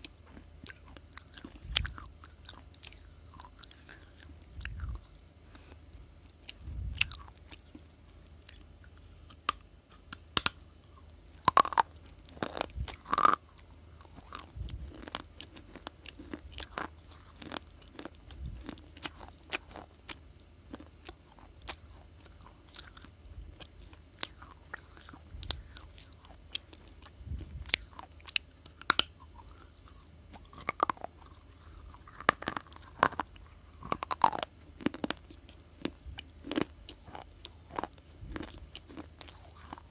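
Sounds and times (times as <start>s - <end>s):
person crunching and chewing: 0.0s - 39.9s.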